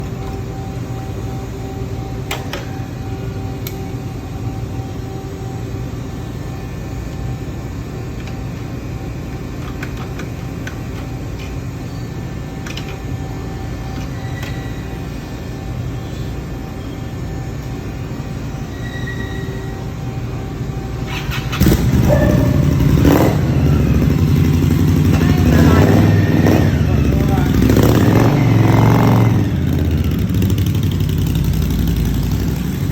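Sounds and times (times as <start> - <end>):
motorcycle engine running: 21.1 - 32.9.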